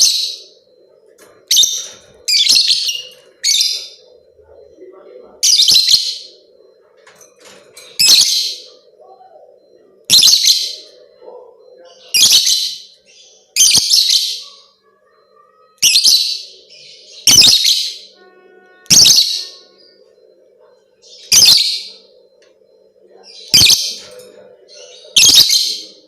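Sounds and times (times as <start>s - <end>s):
lovebird shrill chirping: 10.1s - 10.8s, 17.2s - 18.1s, 18.9s - 19.6s, 21.2s - 21.8s, 23.5s - 24.0s.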